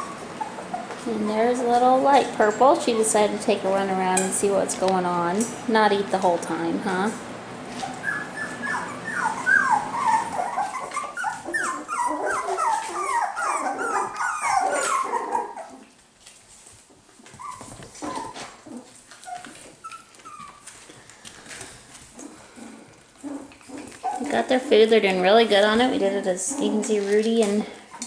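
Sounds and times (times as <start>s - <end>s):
puppies yipping and whining: 0.0s - 1.6s, 7.7s - 16.0s, 16.6s - 28.0s.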